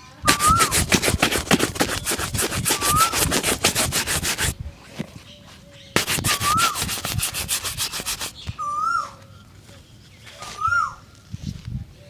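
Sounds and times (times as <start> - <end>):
brush rubbing a shoe: 0.3 - 4.6, 6.0 - 8.4.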